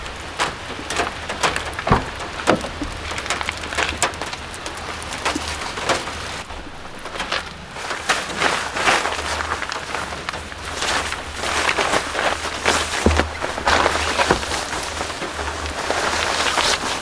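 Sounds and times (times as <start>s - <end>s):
rain with large drops: 0.0s - 17.0s.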